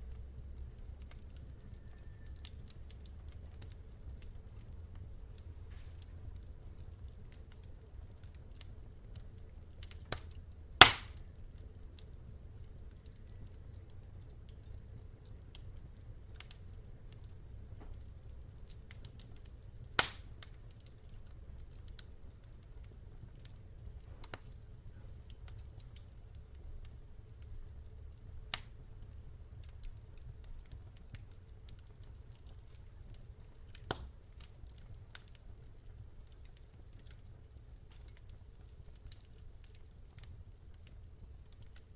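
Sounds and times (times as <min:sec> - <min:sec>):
campfire rumble and crackling: 0:00.0 - 0:41.9
sharp wood pops: 0:10.8 - 0:11.2, 0:20.0 - 0:20.2.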